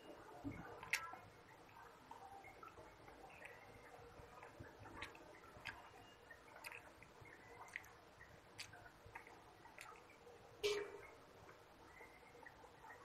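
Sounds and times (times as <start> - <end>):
wet chewing clicks and smacks: 0.6 - 1.8, 2.6 - 10.3.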